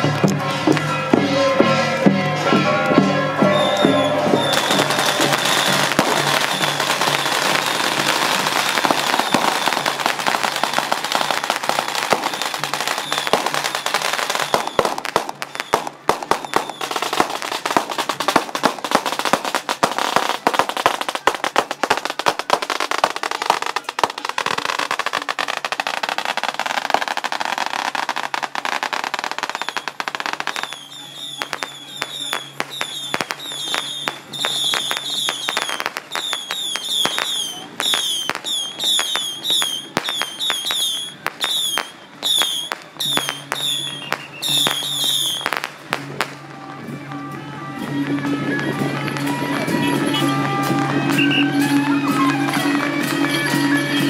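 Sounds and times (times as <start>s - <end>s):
festival band music: 0.0s - 54.0s
firecrackers crackling: 0.0s - 54.0s.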